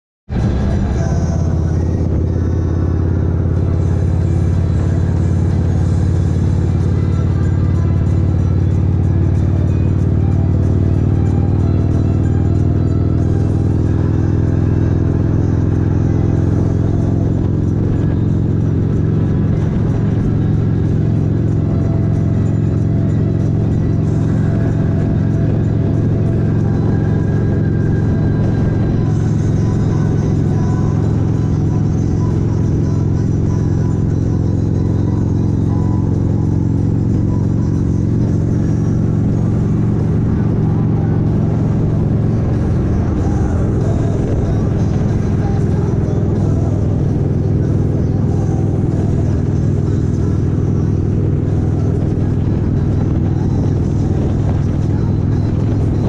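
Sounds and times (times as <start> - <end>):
motorcycle engine droning: 0.3 - 56.0
road and wind noise: 0.3 - 56.0.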